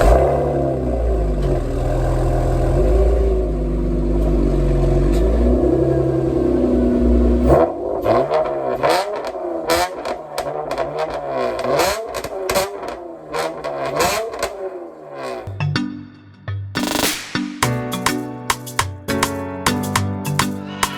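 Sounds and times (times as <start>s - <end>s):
car engine revving: 0.0s - 15.5s
exhaust crackles: 0.0s - 15.5s.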